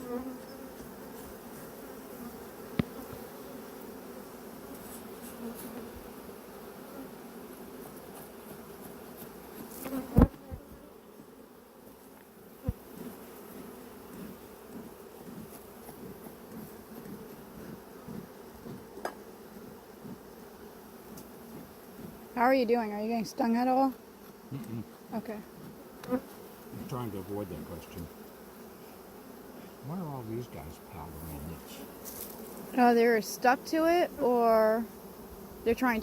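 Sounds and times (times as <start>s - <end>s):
bees buzzing: 0.0s - 36.0s.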